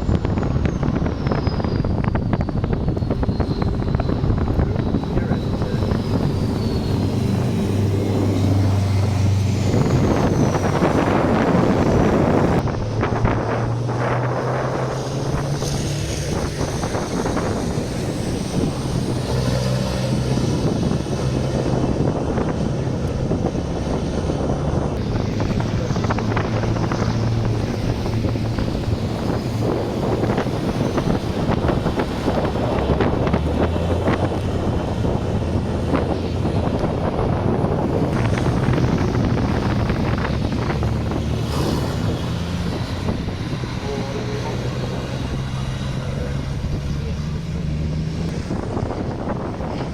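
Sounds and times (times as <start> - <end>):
truck engines running: 0.0 - 49.9
wind noise on microphone: 0.0 - 49.9.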